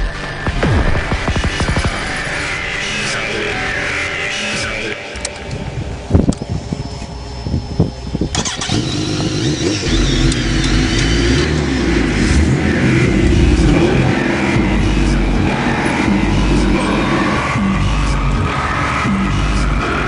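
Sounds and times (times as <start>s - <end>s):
engine knocks and pops: 0.4s - 2.1s
vehicle engine running: 5.2s - 20.0s.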